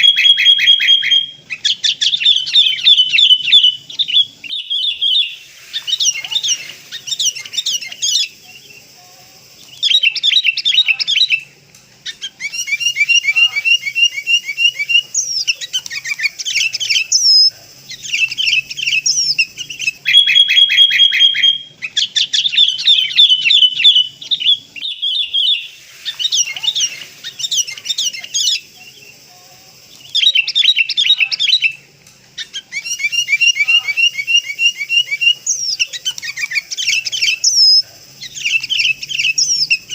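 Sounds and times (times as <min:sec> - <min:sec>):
bird held whistle: 0:00.0 - 0:01.4, 0:18.1 - 0:21.7
bulbuls calling and chattering: 0:00.0 - 0:39.9.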